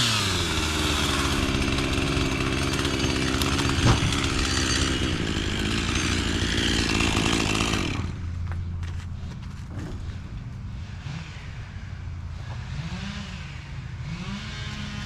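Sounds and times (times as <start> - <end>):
chainsaw engine running: 0.0 - 9.0, 12.3 - 15.0.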